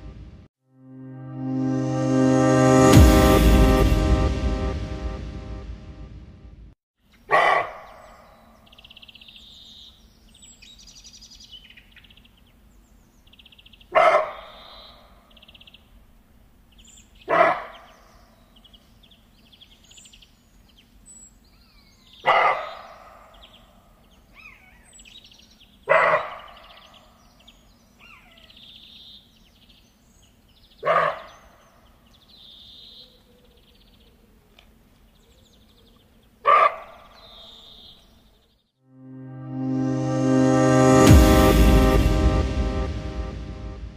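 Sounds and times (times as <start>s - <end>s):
animal barking: 7.3s - 8.4s, 13.9s - 14.7s, 17.2s - 18.0s, 22.2s - 23.4s, 25.8s - 27.0s, 30.8s - 31.6s, 36.4s - 37.8s
faint bird chirps: 16.8s - 38.7s.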